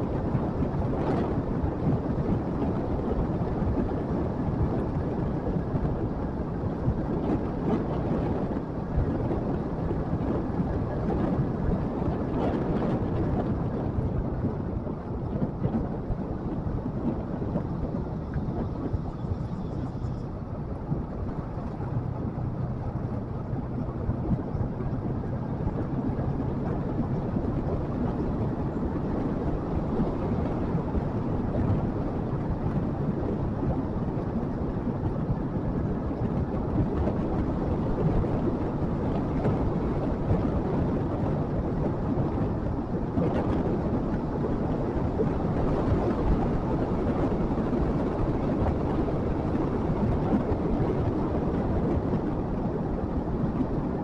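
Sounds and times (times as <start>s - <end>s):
wind and road noise: 0.0s - 54.0s.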